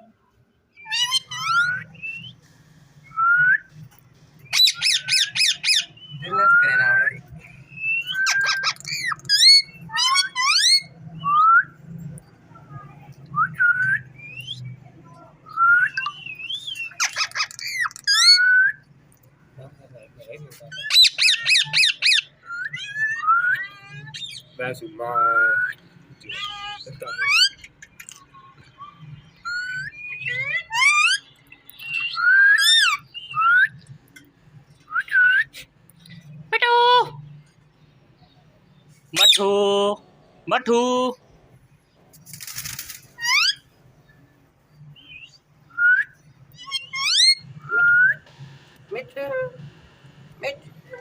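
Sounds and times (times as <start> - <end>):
parakeet whistle-like calls: 4.5 - 7.0, 20.8 - 24.5, 46.6 - 48.1
parrot whistling: 4.5 - 7.0, 45.7 - 48.2
harsh rapid parrot calls: 20.7 - 23.4.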